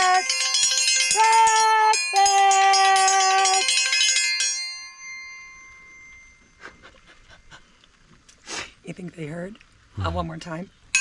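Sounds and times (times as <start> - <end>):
bright bell-like ringing: 0.0 - 6.9.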